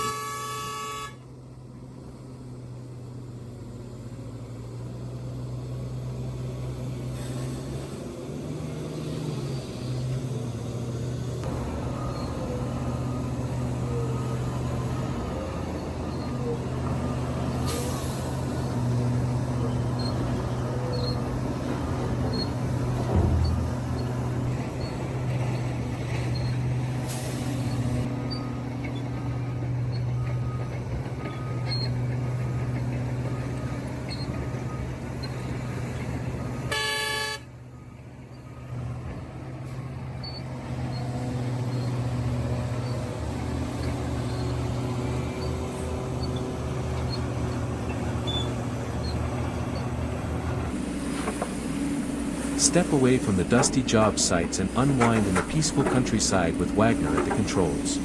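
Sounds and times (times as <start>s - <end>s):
horn toot: 0.0s - 1.2s, 36.7s - 37.5s
diesel machinery running: 0.0s - 58.0s.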